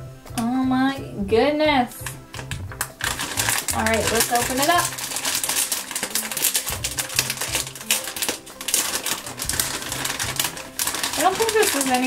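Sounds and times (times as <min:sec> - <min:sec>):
background music: 0:00.0 - 0:12.0
plastic packaging crinkling: 0:02.4 - 0:12.0.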